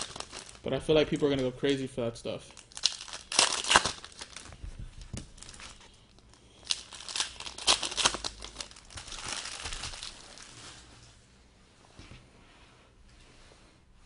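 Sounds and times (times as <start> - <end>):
foil wrapper crinkling and tearing: 0.0 - 1.3, 2.6 - 4.6, 5.2 - 10.8
wrapper rustling: 0.0 - 1.4, 2.6 - 11.2.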